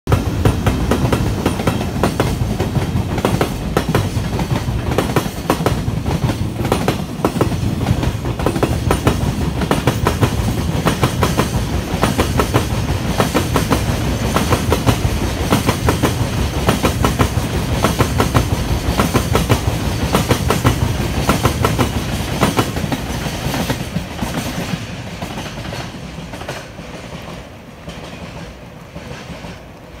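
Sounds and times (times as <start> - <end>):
wheels clacking over rail joints: 0.1 - 29.9
freight train rolling past: 0.1 - 30.0.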